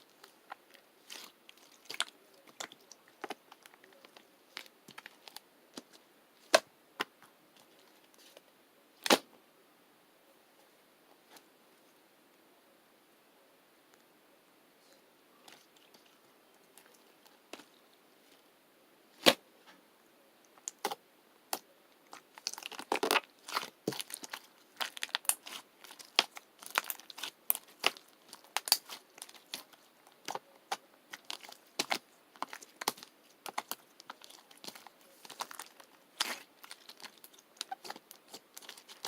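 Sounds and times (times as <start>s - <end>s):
crunchy slime crackling: 0.0s - 6.7s, 20.6s - 39.0s.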